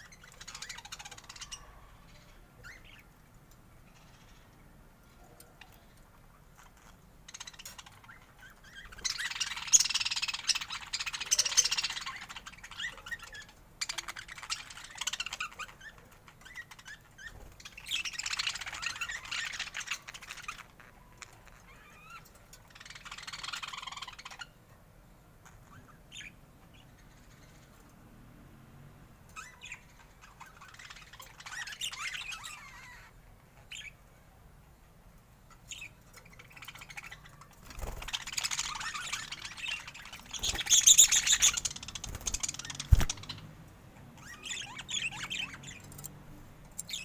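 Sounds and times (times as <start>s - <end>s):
budgerigars chattering and warbling: 0.0s - 3.1s, 5.5s - 24.6s, 29.4s - 34.0s, 35.5s - 47.0s.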